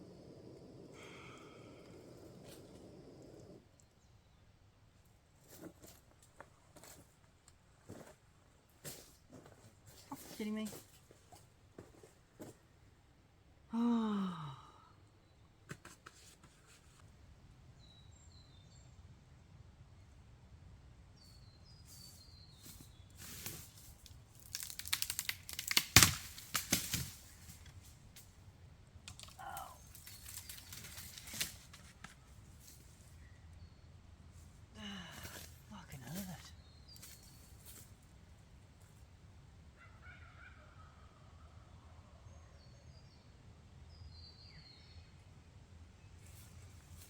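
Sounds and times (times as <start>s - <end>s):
dense crackling and crunching: 23.1s - 28.0s, 29.0s - 33.0s.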